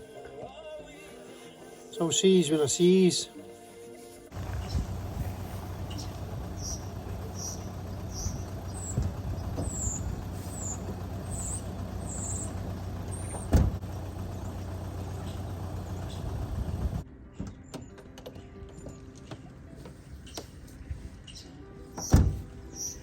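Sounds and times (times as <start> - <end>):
vehicle engine humming: 4.3 - 17.3, 18.4 - 23.0
loud thump: 8.8 - 10.0, 13.2 - 13.8, 22.1 - 22.5.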